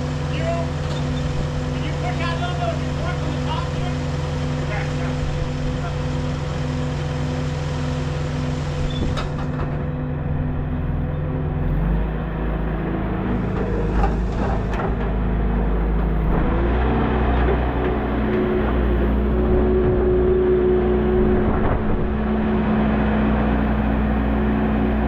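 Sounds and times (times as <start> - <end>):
heavy machine engine running: 0.0 - 25.0.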